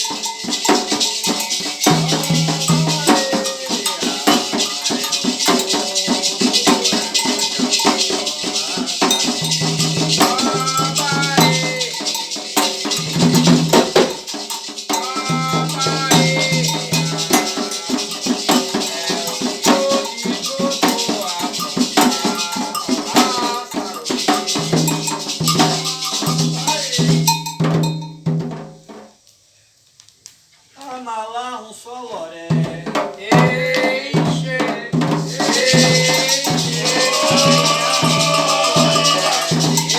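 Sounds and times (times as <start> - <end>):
voices singing: 0.0 - 27.5, 30.8 - 39.9
rattle shaken rhythmically: 0.0 - 28.2, 32.7 - 39.9
drums: 0.0 - 29.3, 32.5 - 39.9.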